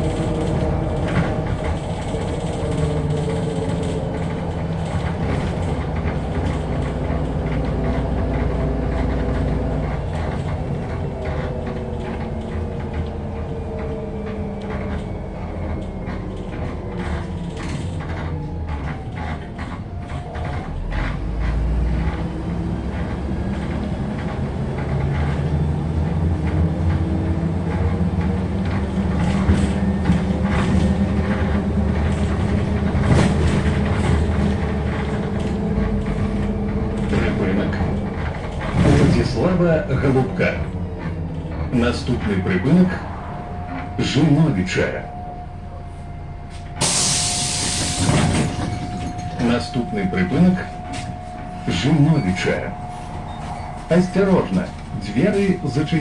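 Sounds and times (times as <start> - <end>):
body panels rattling and creaking: 0.0 - 21.2, 23.0 - 43.0
bus engine running: 0.0 - 56.0.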